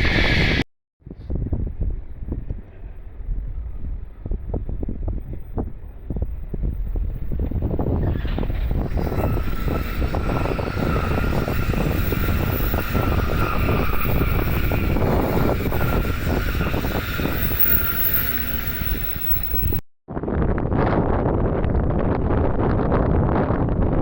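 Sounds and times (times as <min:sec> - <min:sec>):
wind buffeting microphone: 0:01.0 - 0:24.0
train running: 0:02.4 - 0:19.8.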